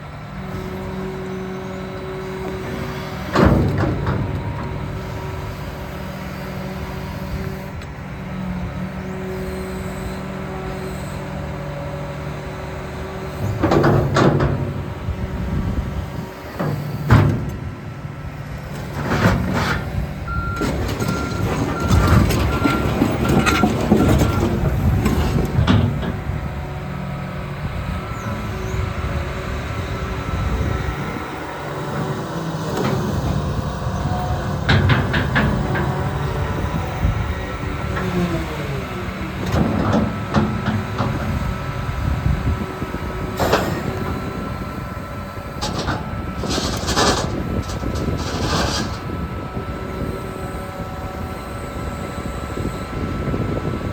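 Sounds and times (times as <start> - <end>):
excavator diesel engine humming: 0.0 - 53.9
loud clanks: 34.6 - 36.6, 45.6 - 49.2.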